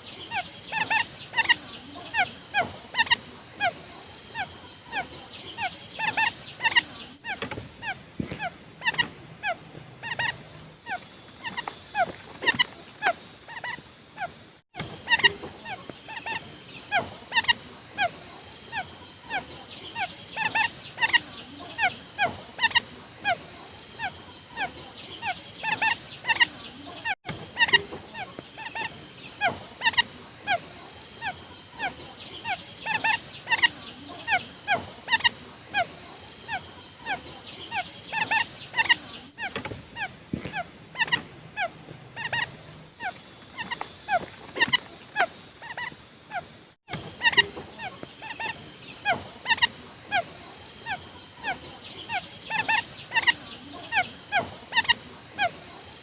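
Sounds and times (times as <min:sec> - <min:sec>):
quail calling: 0:00.0 - 0:56.0.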